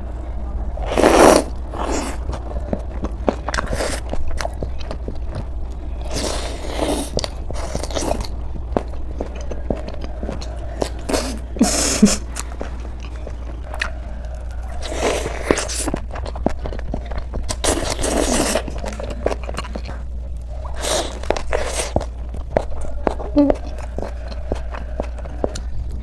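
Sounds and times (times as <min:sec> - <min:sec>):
chewing a wrap: 0:00.8 - 0:26.0.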